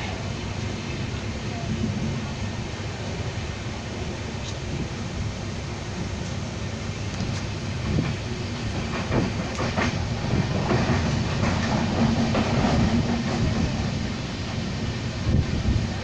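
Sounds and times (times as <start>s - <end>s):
train rumbling on rails: 0.0s - 16.0s
clickety-clack of train wheels: 6.0s - 16.0s.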